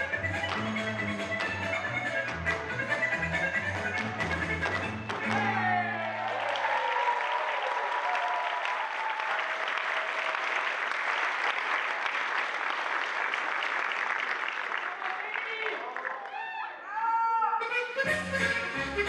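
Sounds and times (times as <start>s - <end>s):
audience applauding: 3.9s - 16.4s.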